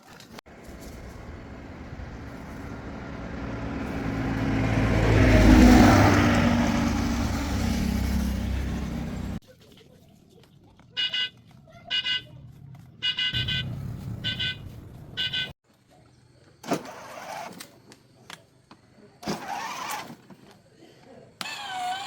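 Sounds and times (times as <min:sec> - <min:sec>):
low engine hum: 0:00.5 - 0:09.4
car horn short beeps: 0:11.0 - 0:12.3, 0:13.0 - 0:15.5.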